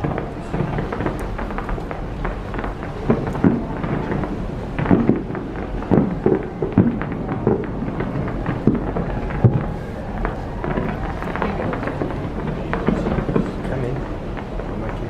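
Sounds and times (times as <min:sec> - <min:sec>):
continuous rumble: 0:00.0 - 0:15.0
fireworks bangs and crackles: 0:00.0 - 0:15.0
heavy low booms: 0:00.0 - 0:15.0.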